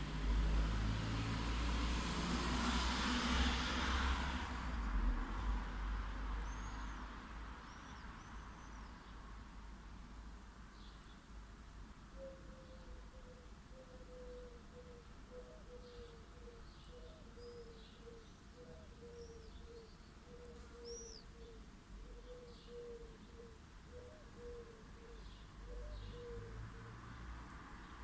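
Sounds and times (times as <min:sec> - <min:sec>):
faint low traffic rumble: 0:00.0 - 0:28.0.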